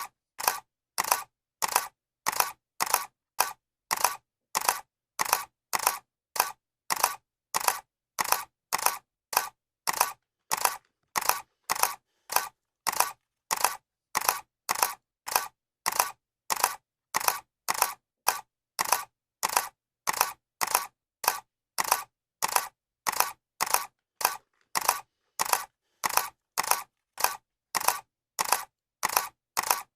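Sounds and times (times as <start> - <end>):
camera shutter clicking: 0.4 - 29.9.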